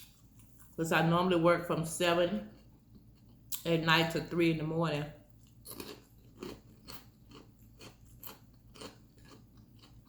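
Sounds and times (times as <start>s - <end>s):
person chewing crunchy food: 2.5s - 3.6s, 5.3s - 10.0s.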